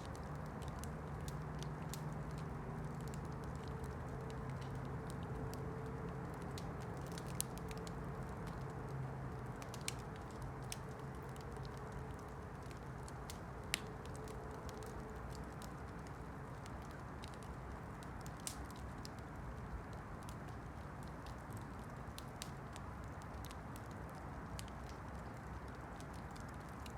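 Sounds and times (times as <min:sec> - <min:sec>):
fire pops: 0:00.0 - 0:19.2
campfire crackling: 0:00.0 - 0:26.9.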